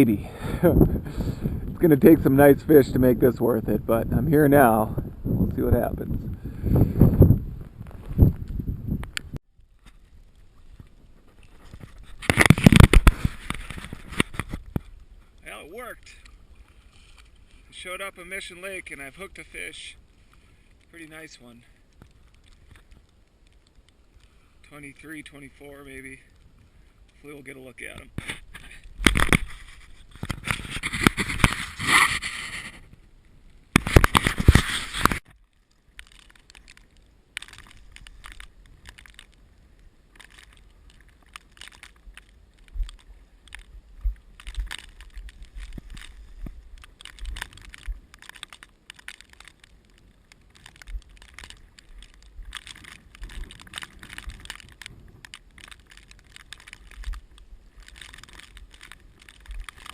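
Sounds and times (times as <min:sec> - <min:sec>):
wind gusts on microphone: 0:00.0 - 0:09.4
crackling and scraping: 0:00.0 - 0:59.9.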